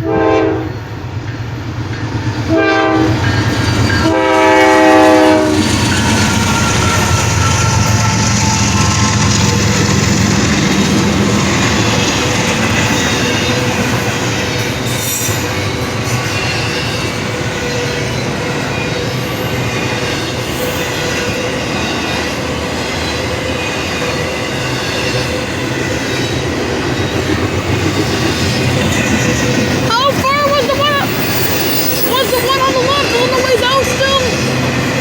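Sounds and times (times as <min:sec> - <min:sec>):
train wheels rushing on rail: 0:00.0 - 0:35.0
wheel squeal: 0:05.9 - 0:09.9, 0:30.8 - 0:32.5.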